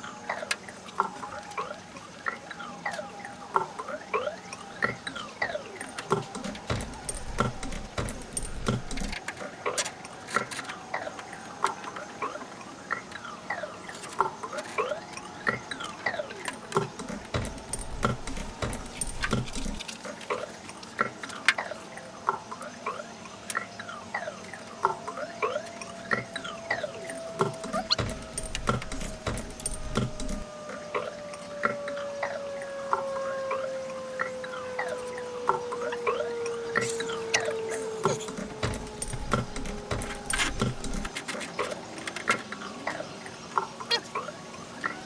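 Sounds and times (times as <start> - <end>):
clicks and rattles of parts: 5.8 - 12.0, 13.9 - 21.7, 25.6 - 30.5, 36.6 - 43.0
high squeaky chirps: 26.4 - 32.4, 34.6 - 41.2.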